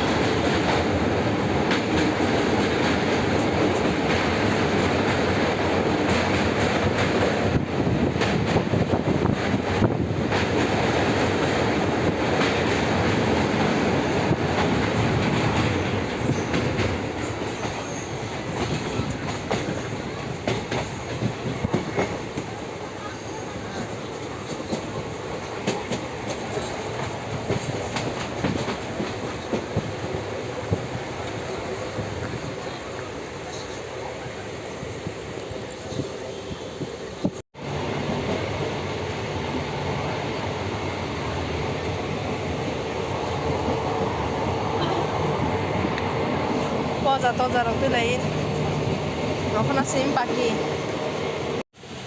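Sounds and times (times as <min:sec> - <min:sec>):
train rumbling on rails: 0:00.0 - 0:52.0.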